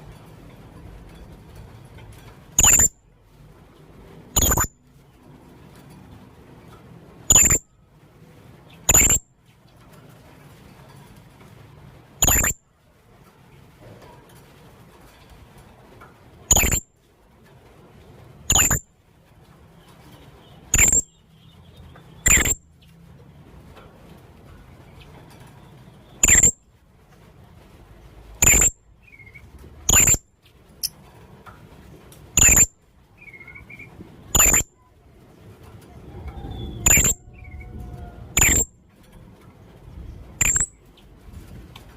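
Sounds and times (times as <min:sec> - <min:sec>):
parrot calling high-pitched: 0:02.6 - 0:02.9, 0:04.4 - 0:04.7, 0:07.3 - 0:07.6, 0:08.9 - 0:09.2, 0:12.2 - 0:12.5, 0:16.5 - 0:16.8, 0:18.5 - 0:18.8, 0:20.8 - 0:21.1, 0:22.3 - 0:22.6, 0:26.2 - 0:26.6, 0:28.4 - 0:28.7, 0:29.9 - 0:30.2, 0:32.4 - 0:33.8, 0:34.4 - 0:34.7, 0:36.4 - 0:38.7, 0:40.4 - 0:40.7
faint soft chirps: 0:40.4 - 0:40.8.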